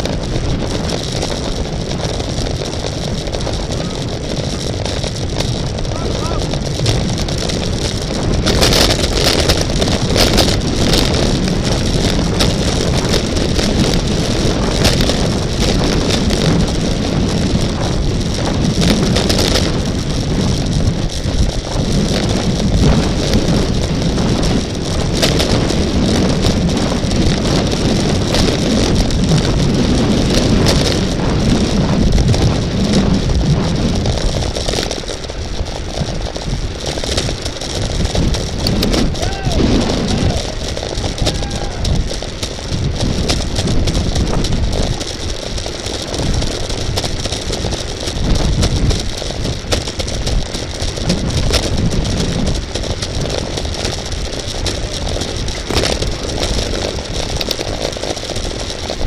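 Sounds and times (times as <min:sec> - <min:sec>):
bicycle tyre rumble: 0:00.0 - 0:59.0
wind rushing over microphone: 0:00.0 - 0:59.0.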